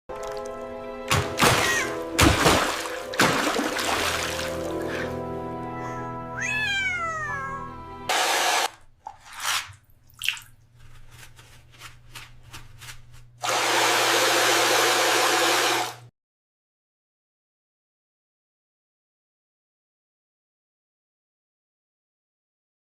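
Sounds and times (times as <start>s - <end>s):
rushing water: 0.1s - 5.2s
cat meowing: 1.5s - 2.0s, 5.9s - 7.9s.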